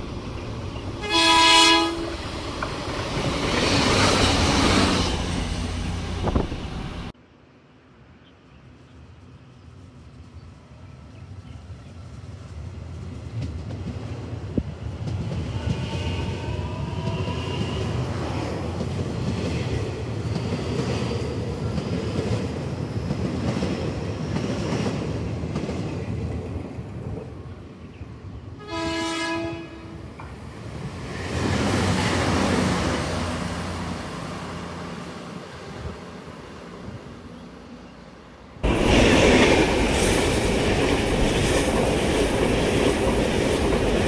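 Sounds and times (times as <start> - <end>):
diesel train rumbling past: 0.0 - 44.0
train horn: 1.0 - 2.2, 15.5 - 17.8, 28.6 - 30.1.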